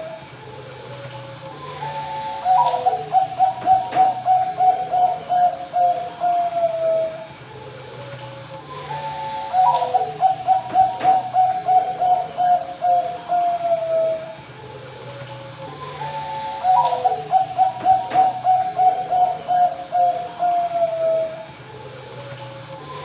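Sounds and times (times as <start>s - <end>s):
steady low hum: 0.0s - 23.0s
dove cooing: 0.9s - 7.3s, 8.0s - 14.5s, 15.1s - 21.5s.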